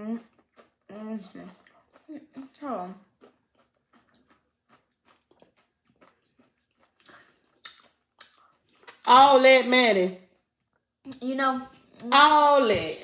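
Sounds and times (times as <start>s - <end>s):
chewing crunchy food: 0.0s - 9.1s.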